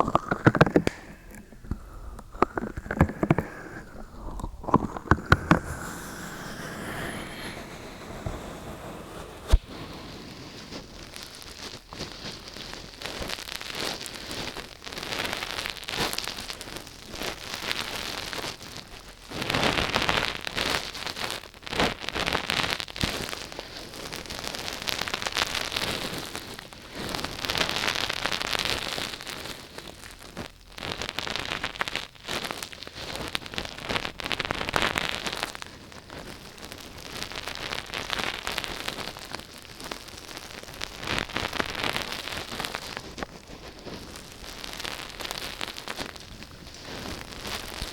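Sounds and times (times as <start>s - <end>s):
crackling and scratching noise: 0.0s - 47.9s.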